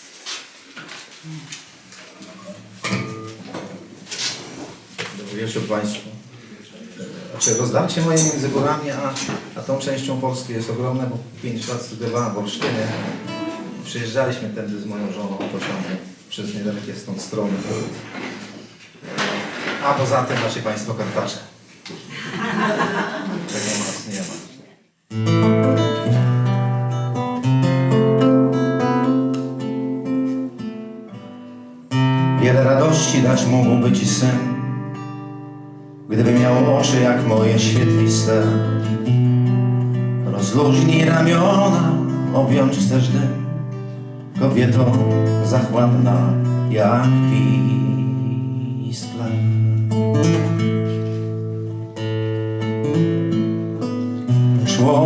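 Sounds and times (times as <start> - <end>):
acoustic guitar strumming chords: 2.6 - 3.5, 12.6 - 13.8, 25.1 - 55.0
man singing: 32.1 - 34.9, 36.1 - 39.2, 40.2 - 49.8, 54.6 - 55.0.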